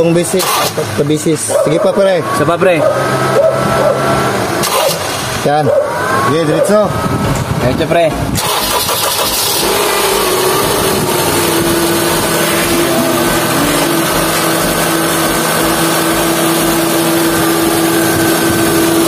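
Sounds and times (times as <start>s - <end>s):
power steering pump whine: 0.0s - 19.0s
car engine idling: 6.9s - 19.0s.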